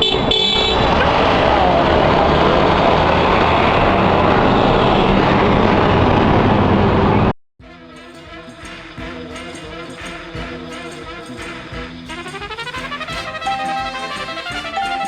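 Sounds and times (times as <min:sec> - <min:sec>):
busy street traffic: 0:00.0 - 0:07.3.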